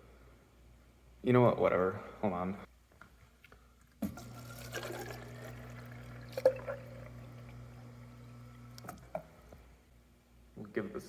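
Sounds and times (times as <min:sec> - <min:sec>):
water flowing from fountain: 0:04.1 - 0:09.0
low hum: 0:05.2 - 0:09.8.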